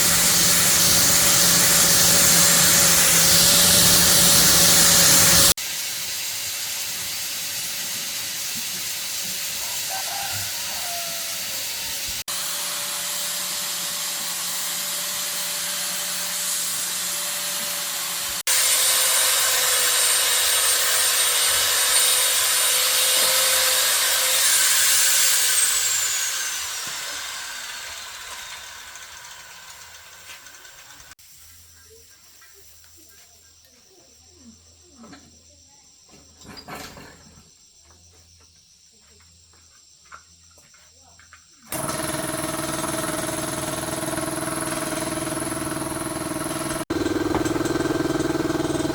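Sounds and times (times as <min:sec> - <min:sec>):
power tool whining: 0:00.0 - 0:05.6, 0:11.4 - 0:31.1, 0:41.7 - 0:48.9
power tool winding down: 0:00.0 - 0:05.6, 0:11.4 - 0:31.2, 0:41.7 - 0:48.9.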